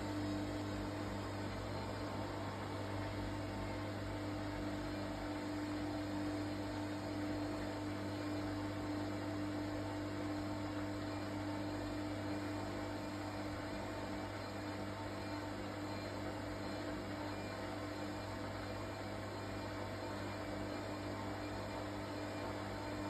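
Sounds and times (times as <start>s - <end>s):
washing machine running: 0.0s - 23.0s.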